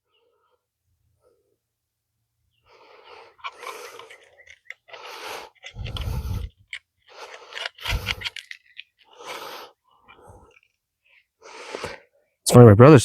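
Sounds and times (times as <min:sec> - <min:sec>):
magnet scraping metal: 0:03.1 - 0:10.7.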